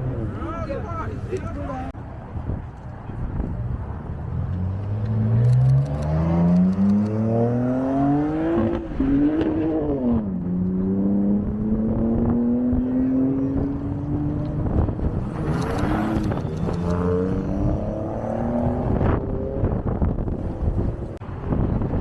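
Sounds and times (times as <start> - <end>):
car engine accelerating: 4.3 - 21.2.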